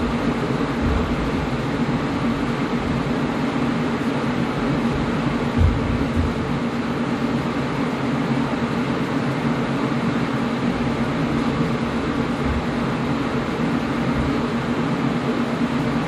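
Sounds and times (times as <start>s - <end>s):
low thumps: 0.0s - 3.3s, 4.6s - 6.7s
air conditioner humming: 0.0s - 16.0s.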